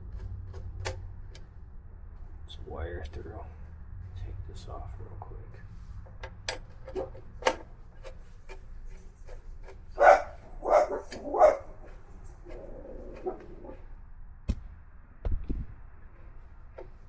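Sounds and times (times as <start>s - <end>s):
hand tools clicking on motorcycle: 6.1s - 11.4s
dog barking: 10.0s - 13.8s.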